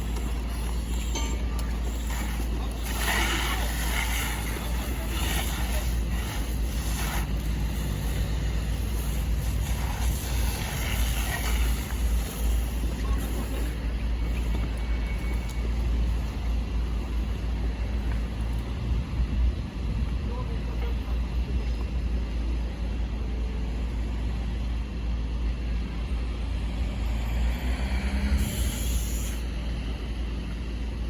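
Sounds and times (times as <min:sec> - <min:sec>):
faint voices: 0:00.0 - 0:16.8
car rumble with road noise: 0:00.0 - 0:31.0.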